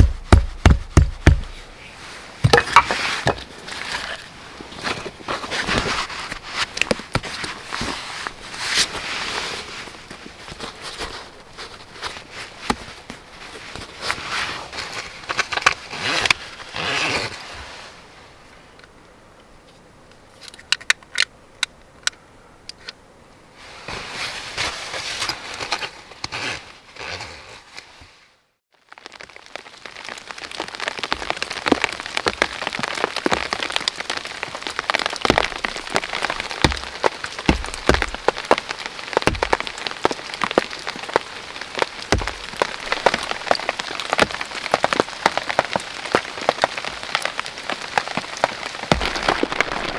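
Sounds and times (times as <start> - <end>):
rain falling on a surface: 0.0 - 18.2, 28.7 - 49.9.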